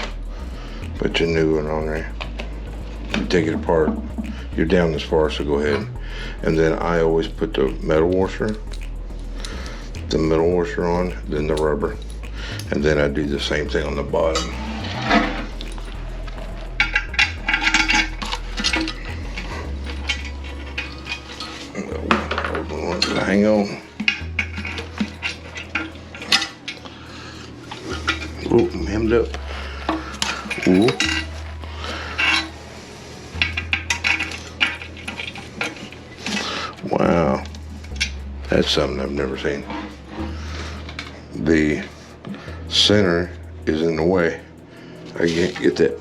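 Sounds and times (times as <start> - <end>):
low steady hum: 0.0 - 36.4
metal hardware clinking: 29.8 - 31.5.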